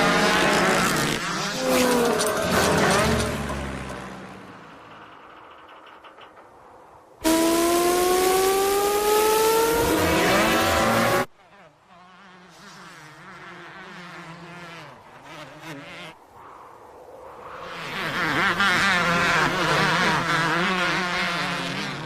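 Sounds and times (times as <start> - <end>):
rising engine-like whine: 7.2 - 11.3.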